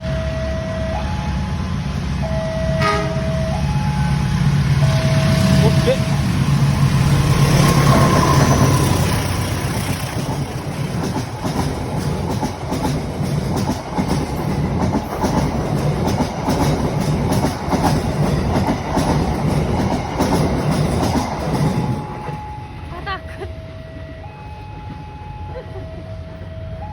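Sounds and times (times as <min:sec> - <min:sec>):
diesel locomotive engine hum: 0:00.0 - 0:26.9
wagon wheels clattering on rails: 0:07.7 - 0:22.4.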